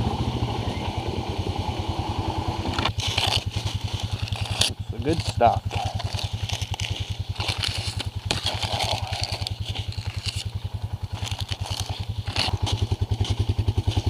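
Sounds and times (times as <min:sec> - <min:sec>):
atv engine chugging: 0:00.0 - 0:14.0
clattering and scraping: 0:02.7 - 0:10.5.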